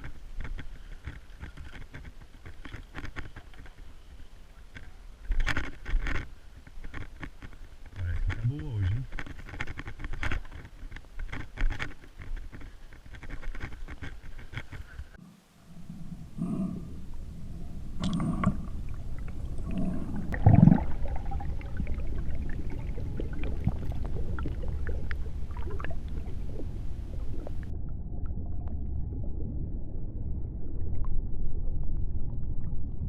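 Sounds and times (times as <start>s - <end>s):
low underwater rumble: 15.1s - 33.0s
muffled gurgling bursts: 15.5s - 27.7s.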